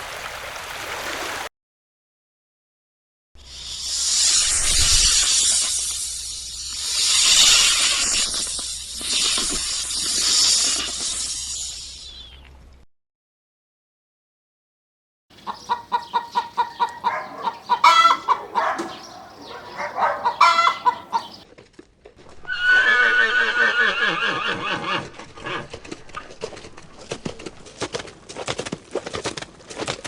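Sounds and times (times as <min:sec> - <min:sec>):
chickens clucking: 0:15.4 - 0:21.5
horse whinnying: 0:22.4 - 0:25.7.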